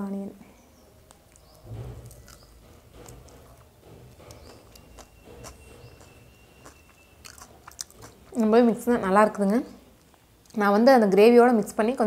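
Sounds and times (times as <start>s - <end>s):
faint chewing with mouth clicks: 1.0s - 8.6s, 9.3s - 11.3s.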